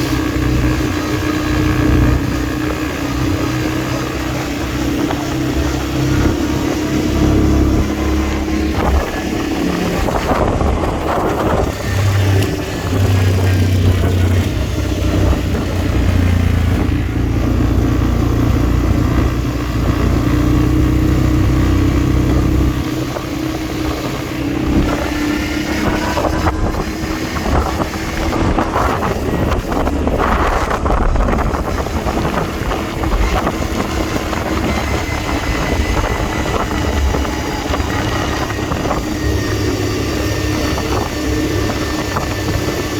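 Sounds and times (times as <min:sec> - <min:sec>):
quad bike engine running: 0:00.0 - 0:42.9.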